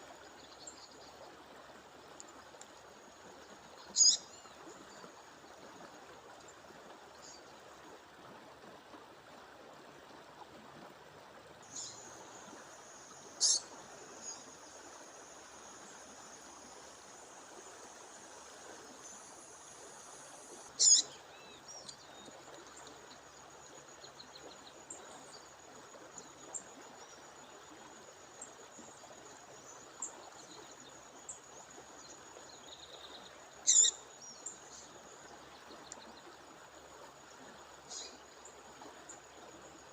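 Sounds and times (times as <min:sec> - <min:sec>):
running water: 0:00.0 - 0:39.9
songbird calls: 0:03.8 - 0:04.6, 0:11.7 - 0:23.4, 0:32.0 - 0:34.9, 0:37.8 - 0:38.2.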